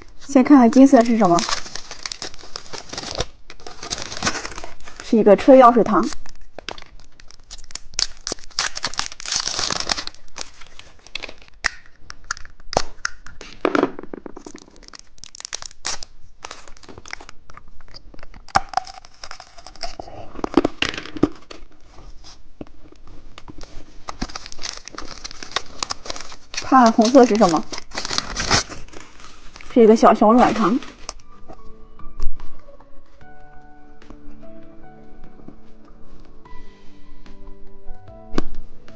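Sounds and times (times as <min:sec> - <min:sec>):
plastic packaging crinkling and tearing: 0:00.0 - 0:13.4, 0:14.3 - 0:31.4.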